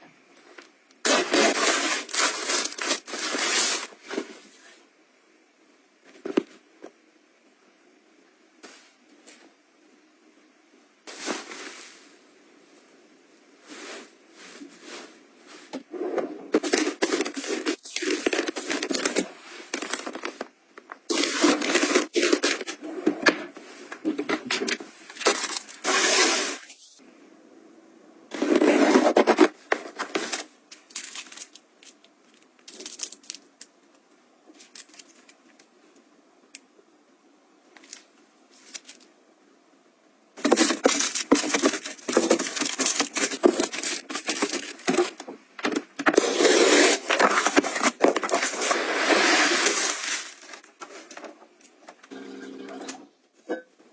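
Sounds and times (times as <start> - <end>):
packaging crinkling and tearing: 1.0 - 3.9, 16.6 - 20.5, 21.1 - 22.8, 28.4 - 33.7, 34.6 - 35.7, 40.4 - 45.2, 46.0 - 51.0.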